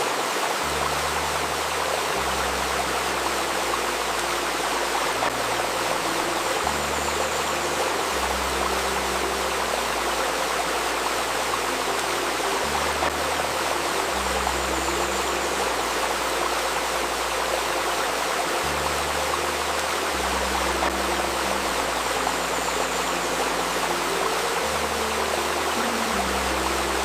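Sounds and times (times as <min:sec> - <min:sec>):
babbling river water: 0:00.0 - 0:27.0
soft drone of low tones: 0:00.6 - 0:27.0.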